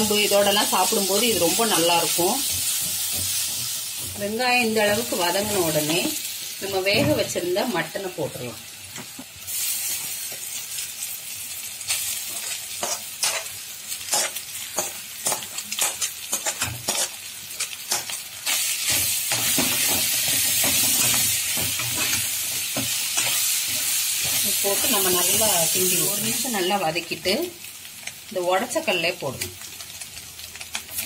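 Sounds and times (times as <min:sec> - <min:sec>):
meat sizzling in oil: 0:00.0 - 0:31.0
spatula scraping on pan: 0:12.3 - 0:25.4.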